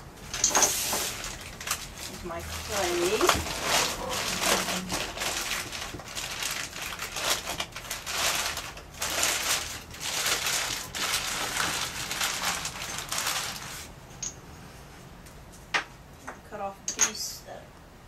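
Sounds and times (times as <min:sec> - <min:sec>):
plastic bag rustling: 0:00.2 - 0:14.0.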